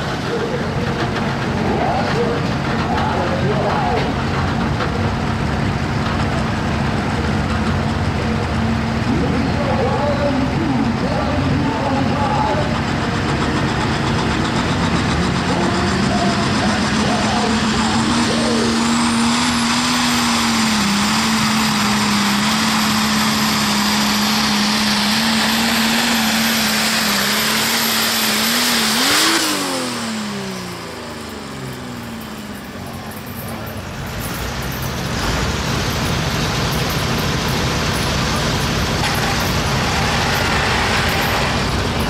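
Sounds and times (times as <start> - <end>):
diesel tractor engine at high revs: 0.0 - 42.0
rushing noise: 33.8 - 42.0.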